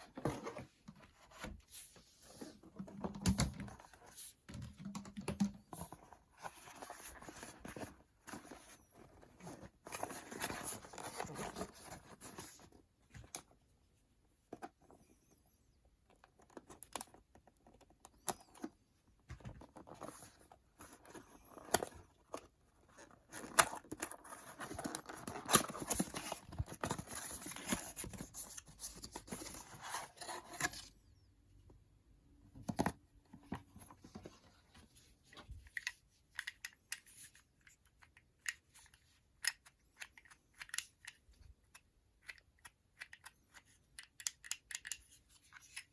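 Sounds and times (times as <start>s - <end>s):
objects being handled: 0.0s - 13.6s, 16.1s - 31.2s.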